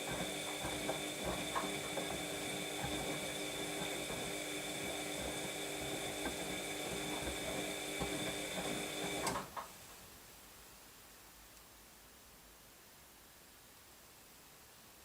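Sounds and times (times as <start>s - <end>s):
washing machine motor whine: 0.0s - 9.6s
washing machine click: 0.0s - 9.7s.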